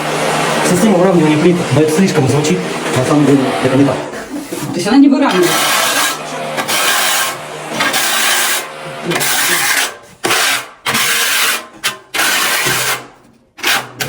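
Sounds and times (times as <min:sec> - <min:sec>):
tile scraping and rubbing strokes: 0:04.1 - 0:13.0.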